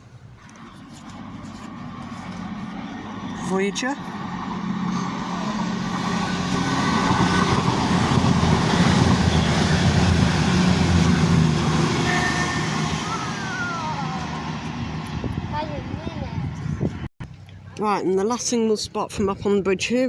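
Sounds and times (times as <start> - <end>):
diesel engines humming: 0.0 - 18.4
train wheel and rail noise: 0.4 - 16.1.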